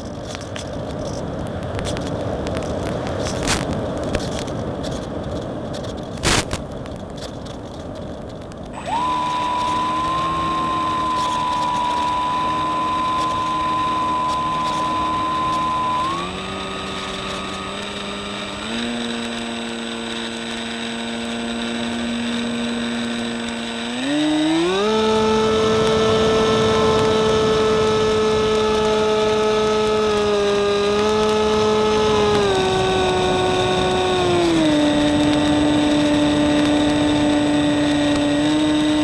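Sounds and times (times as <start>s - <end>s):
air rushing with crackles: 0.0s - 39.0s
electric motor whining: 8.8s - 39.0s.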